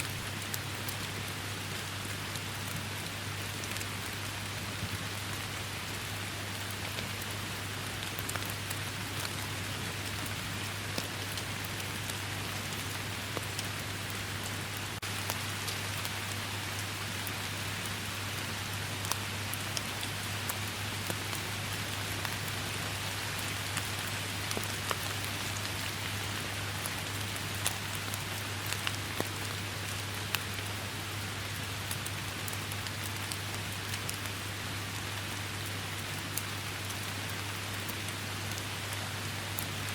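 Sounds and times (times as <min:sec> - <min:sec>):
steady rainfall: 0:00.0 - 0:39.9
raindrops ticking: 0:19.0 - 0:38.7.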